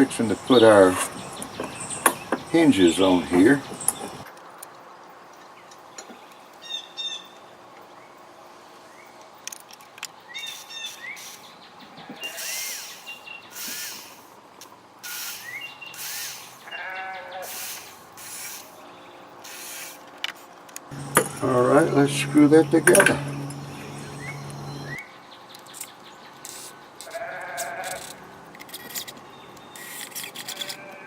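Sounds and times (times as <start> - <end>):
small birds chirping: 0.1 - 4.3, 10.0 - 20.1, 20.9 - 27.9, 29.0 - 30.8
scraping and handling noise: 25.7 - 31.0.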